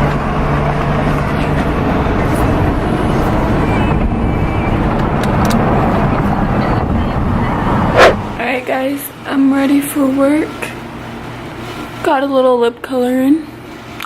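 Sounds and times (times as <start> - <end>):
low hum: 0.0 - 11.2
car engine and road noise: 0.0 - 12.0.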